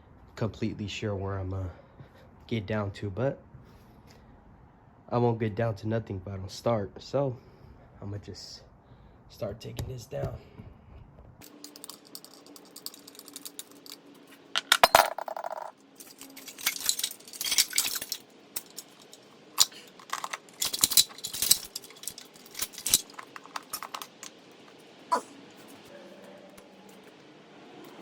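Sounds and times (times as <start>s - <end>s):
metal tools and parts clinking: 11.4s - 25.2s.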